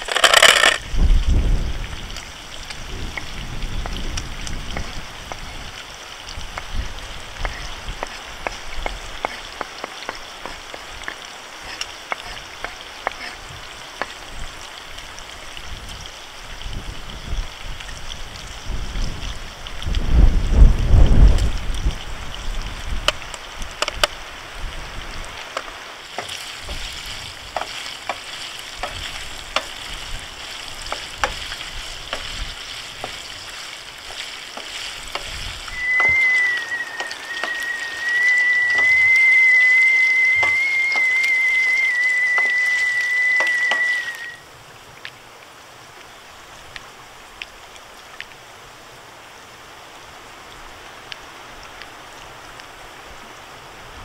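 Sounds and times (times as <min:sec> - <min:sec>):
sharp crackles: 0:00.0 - 0:01.1
food frying and sizzling: 0:00.0 - 0:54.0
steady hiss: 0:00.0 - 0:54.0
steady high whistle: 0:35.7 - 0:44.4.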